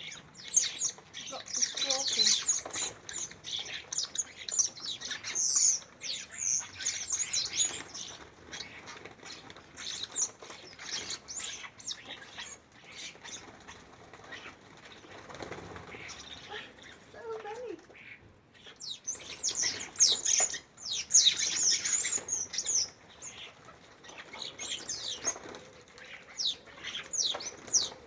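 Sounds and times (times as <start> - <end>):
small birds chirping: 0.0 - 28.0
wings flapping: 6.7 - 18.1, 19.3 - 28.0.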